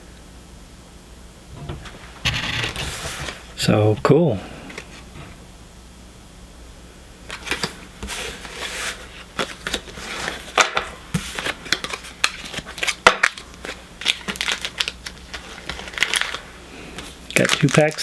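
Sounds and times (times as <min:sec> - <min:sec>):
foil wrapper crinkling: 0:07.3 - 0:18.0.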